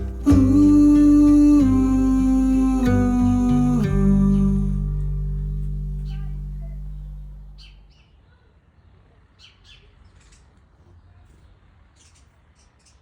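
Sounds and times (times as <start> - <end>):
guitar music: 0.0 - 7.7
wild birds chirping: 6.9 - 8.2.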